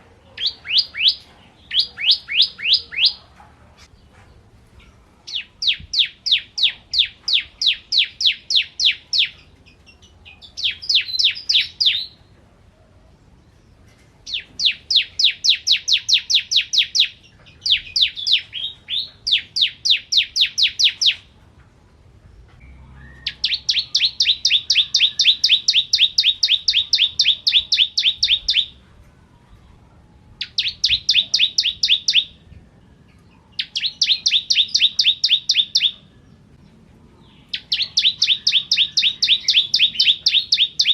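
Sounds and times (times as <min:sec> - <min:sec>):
bird rapid sharp chirps: 0:00.3 - 0:03.2, 0:10.5 - 0:12.2, 0:14.3 - 0:21.3, 0:23.0 - 0:28.8, 0:30.4 - 0:32.4, 0:33.6 - 0:36.1, 0:37.4 - 0:40.9.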